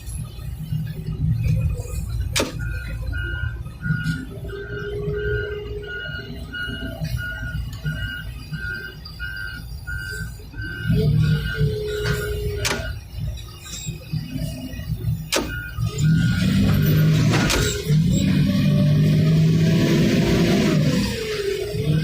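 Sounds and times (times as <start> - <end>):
reversing alarm beeping: 0.0 - 22.0.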